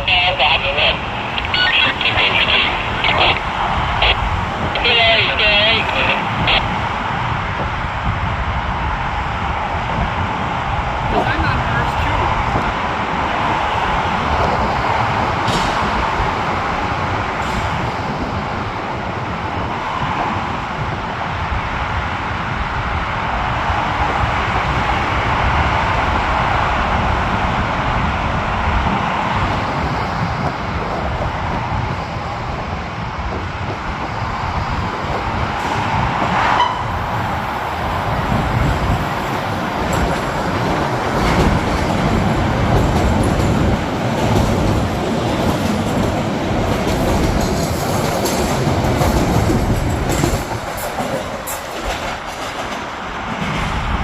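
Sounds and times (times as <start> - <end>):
train rumbling on rails: 0.0 - 54.0.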